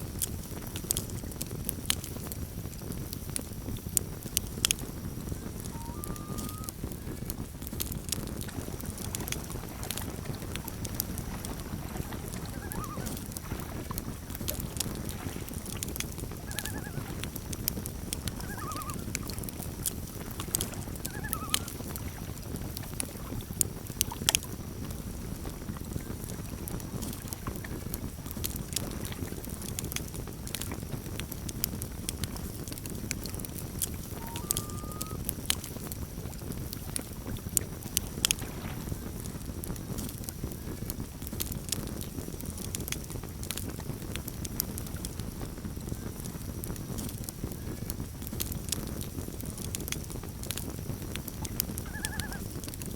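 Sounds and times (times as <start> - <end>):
campfire crackling: 0.0 - 52.9
faint short bird calls: 5.7 - 6.7, 12.4 - 13.2, 18.4 - 19.3, 21.1 - 21.7, 34.2 - 35.2, 51.9 - 52.4.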